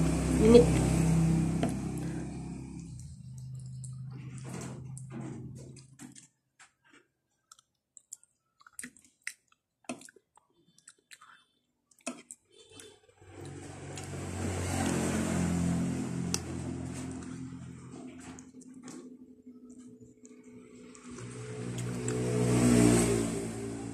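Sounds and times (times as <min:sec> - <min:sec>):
low humming rumble: 0:00.0 - 0:05.8
wet chewing and smacks: 0:02.8 - 0:05.1, 0:06.9 - 0:14.2, 0:18.1 - 0:22.4.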